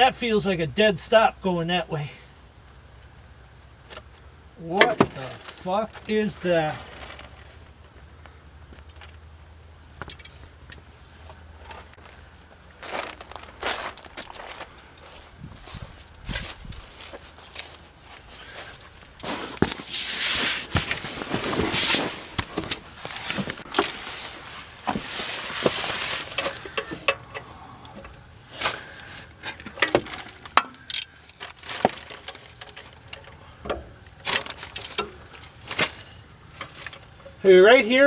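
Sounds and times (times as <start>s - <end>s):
scraping or rustling: 4.9s - 7.7s, 11.1s - 33.5s.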